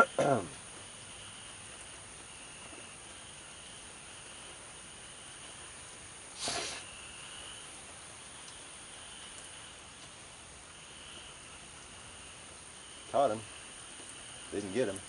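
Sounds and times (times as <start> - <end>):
insects trilling: 0.0 - 15.0
light rain hissing: 0.0 - 15.0
short breathy hiss: 6.3 - 7.8.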